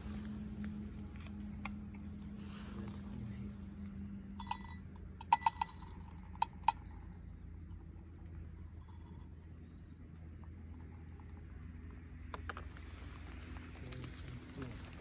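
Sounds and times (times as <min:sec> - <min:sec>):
steady low hum: 0:00.0 - 0:15.0
metal cookware clinking: 0:04.4 - 0:06.9.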